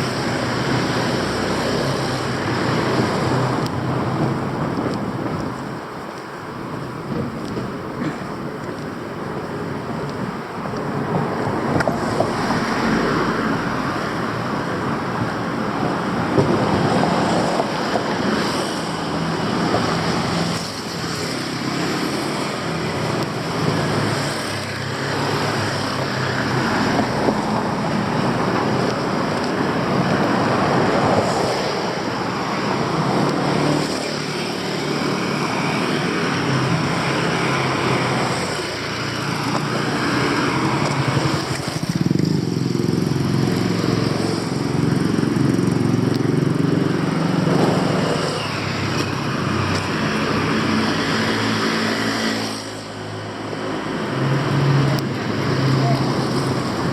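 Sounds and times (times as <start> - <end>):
passing vehicle engines: 0.0 - 56.9.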